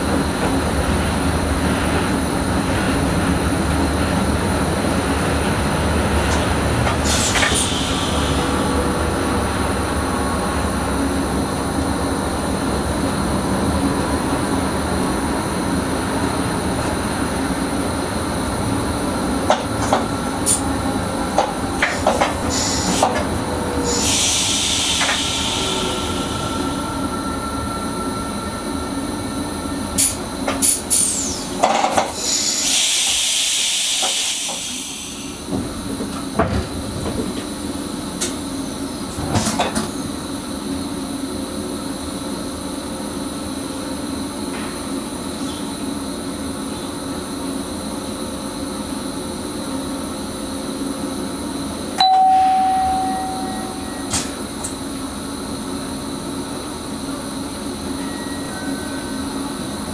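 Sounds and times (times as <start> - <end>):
electric train hum: 0.0 - 59.9
high rushing hiss: 23.9 - 27.2.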